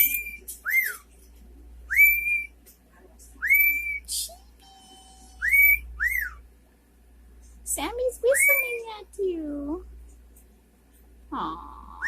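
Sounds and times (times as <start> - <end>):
cockatiel whistling: 0.0 - 1.0, 1.9 - 2.5, 3.4 - 4.4, 5.3 - 6.4, 8.3 - 8.8.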